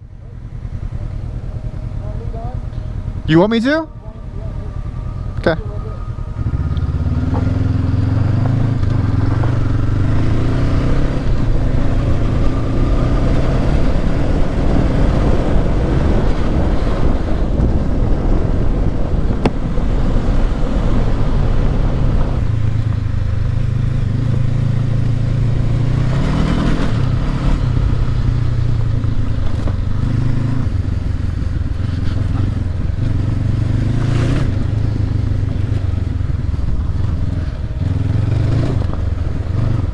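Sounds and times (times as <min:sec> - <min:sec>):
motorcycle engine revving: 0:00.0 - 0:39.9
wind noise: 0:06.1 - 0:39.9.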